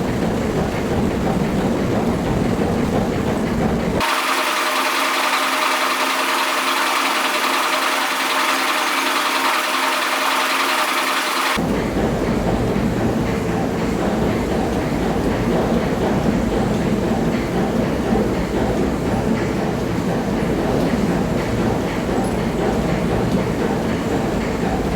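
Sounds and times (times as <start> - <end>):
hissing machine with hum: 0.0 - 11.7
workshop machinery rumbling: 0.0 - 11.8.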